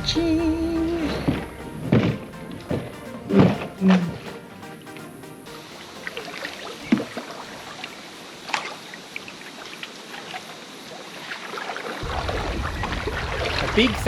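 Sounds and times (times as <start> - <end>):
paddle strokes splashing: 0.8 - 14.0.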